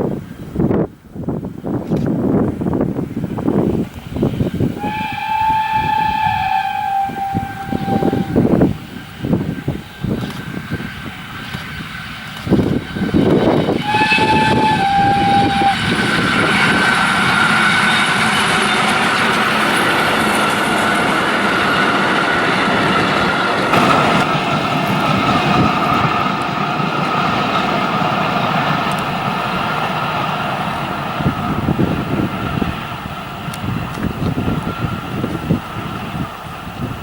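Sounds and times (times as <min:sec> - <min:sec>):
train running past: 0:00.0 - 0:37.0
steam locomotive whistle: 0:04.7 - 0:08.8, 0:13.7 - 0:19.4.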